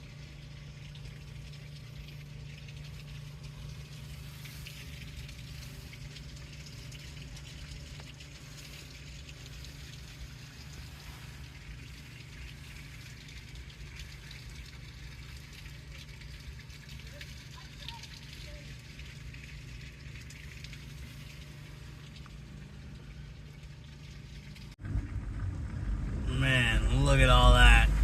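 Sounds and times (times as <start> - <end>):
steady low hum: 0.0 - 28.0
rain on car roof: 24.6 - 28.0.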